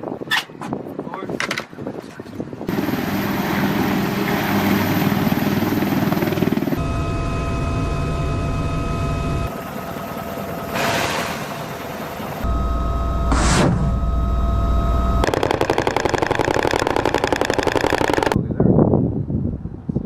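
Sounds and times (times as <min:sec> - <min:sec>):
helicopter engines and rotors: 0:02.3 - 0:18.4
high turbine whine: 0:02.7 - 0:18.4
brief rush of noise: 0:13.3 - 0:14.0.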